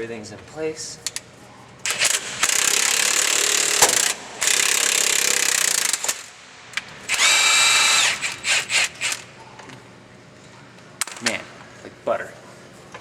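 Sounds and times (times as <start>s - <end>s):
impact wrench hammering: 1.9s - 9.2s.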